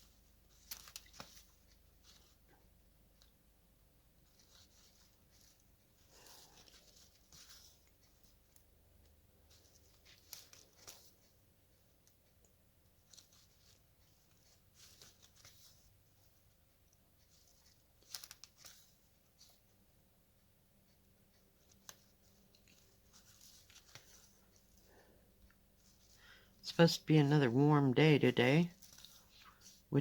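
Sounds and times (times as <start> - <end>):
thread drawn through fabric: 4.2 - 11.3.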